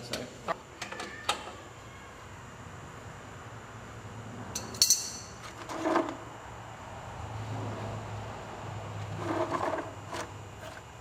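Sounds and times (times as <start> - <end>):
metal tools clinking: 4.6 - 5.4.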